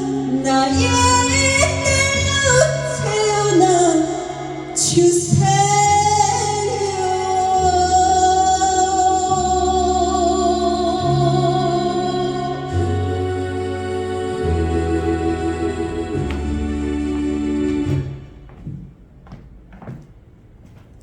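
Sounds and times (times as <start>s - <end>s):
keyboard chords: 2.2s - 18.8s
bass line: 7.7s - 18.8s.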